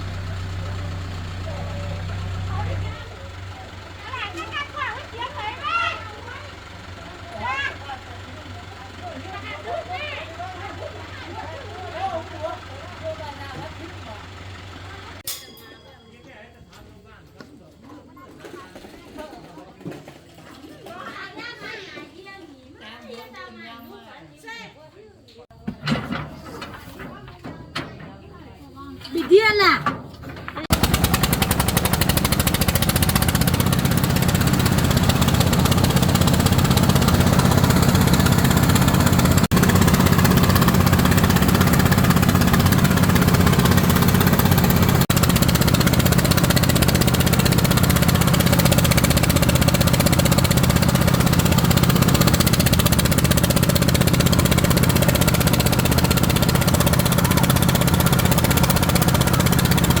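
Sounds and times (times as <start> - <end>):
small engine running: 0.0 - 15.3, 30.6 - 60.0.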